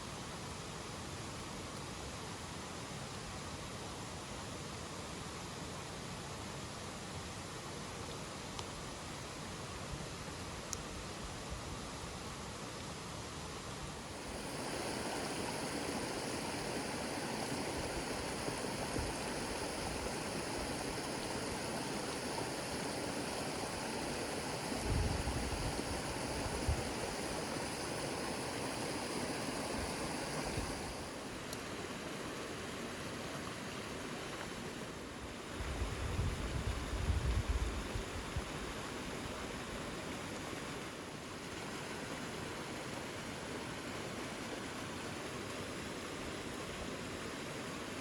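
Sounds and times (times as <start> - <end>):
heavy rain hissing: 14.0 - 32.4.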